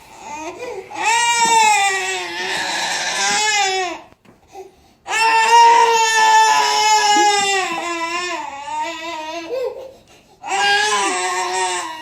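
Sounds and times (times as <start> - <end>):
baby crying: 5.1 - 12.0.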